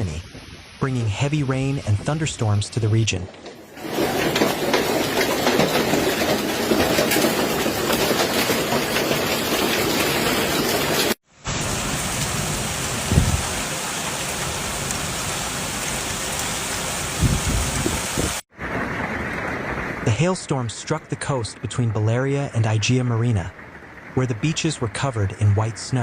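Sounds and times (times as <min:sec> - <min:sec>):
hail and heavy rain clattering: 0:03.3 - 0:22.7.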